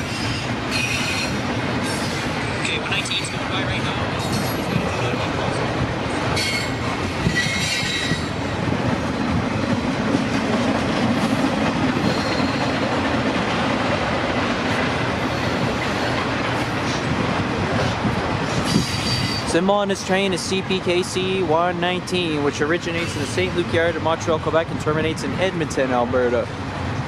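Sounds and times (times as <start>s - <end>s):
train wheel squeal: 0.0s - 2.4s, 4.2s - 4.8s, 6.3s - 8.4s, 12.0s - 12.9s, 18.5s - 19.6s, 22.8s - 23.6s
freight train cars rolling: 0.0s - 27.0s.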